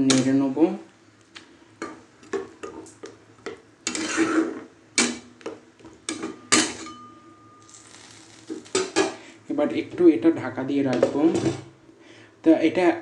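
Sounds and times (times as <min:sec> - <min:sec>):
spoon clinking against pot: 0:06.1 - 0:07.2.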